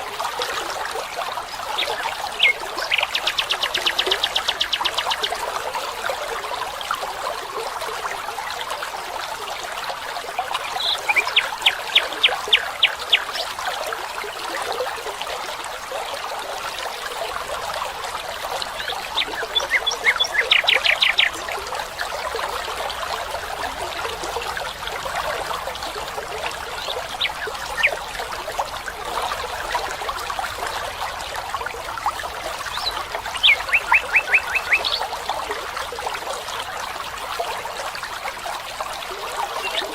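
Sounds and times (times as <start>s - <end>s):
stream water trickling: 0.0s - 39.9s
songbird trilling: 19.2s - 21.4s, 32.8s - 35.1s.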